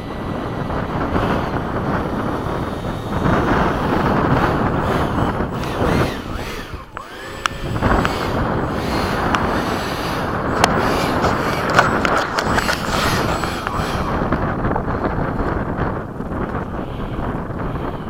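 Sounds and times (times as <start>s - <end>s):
wind buffeting microphone: 0.0s - 18.0s
sharp clicks: 4.4s - 14.4s.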